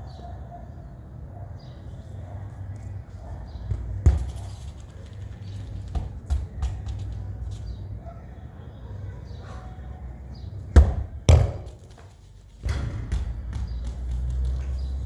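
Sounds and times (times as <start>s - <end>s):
football thudding: 3.7s - 4.6s, 10.8s - 13.8s.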